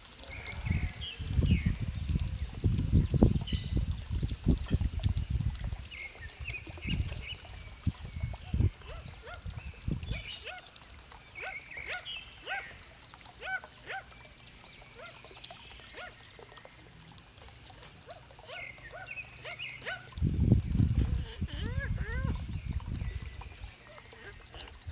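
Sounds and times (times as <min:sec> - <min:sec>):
birds chirping and squawking: 0:08.6 - 0:16.5, 0:18.0 - 0:20.2, 0:20.9 - 0:24.9.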